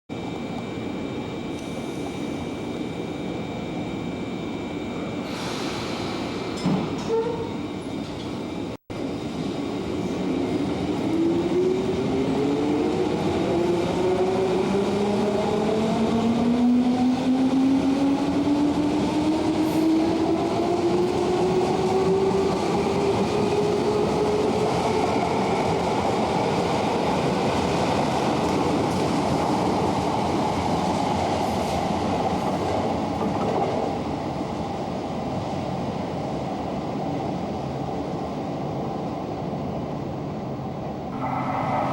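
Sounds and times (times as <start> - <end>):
wheels rumbling on rail: 39.5 - 41.9.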